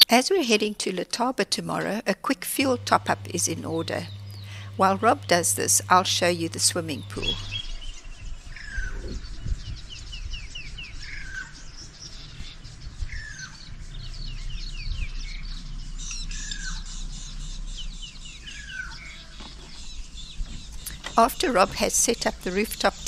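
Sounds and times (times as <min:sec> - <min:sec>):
low steady rumble: 0:01.5 - 0:23.0.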